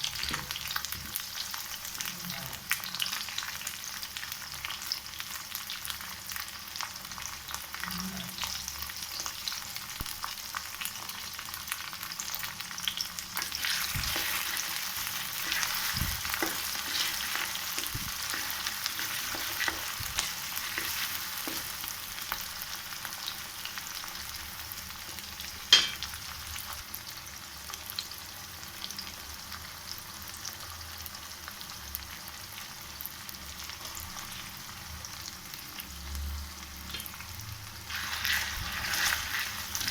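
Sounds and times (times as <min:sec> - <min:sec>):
food sizzling in a pan: 0:00.0 - 0:39.9
utensil scraping a pan: 0:13.4 - 0:21.8, 0:37.9 - 0:39.9.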